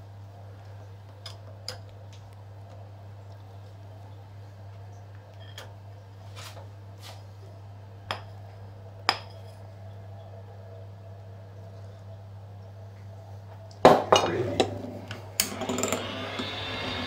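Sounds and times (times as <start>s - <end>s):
utensils scraping dishes: 15.4s - 17.0s.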